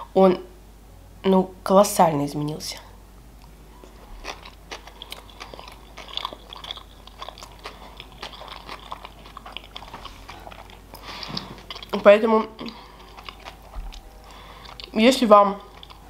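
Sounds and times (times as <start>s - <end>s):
chewing mouth clicks and smacks: 3.4s - 14.0s, 15.6s - 16.0s.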